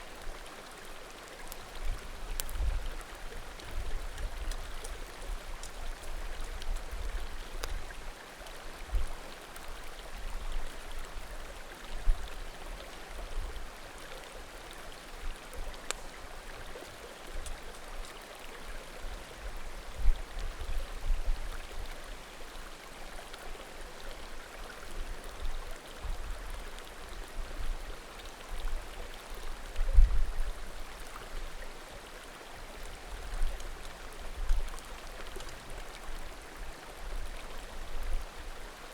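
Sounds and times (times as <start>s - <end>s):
firewood crackling and popping: 2.3s - 2.6s.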